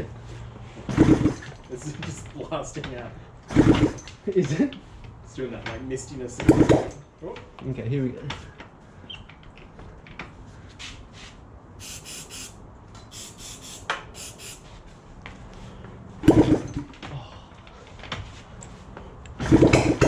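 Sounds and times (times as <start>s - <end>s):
aerosol spray hissing: 11.8s - 14.8s.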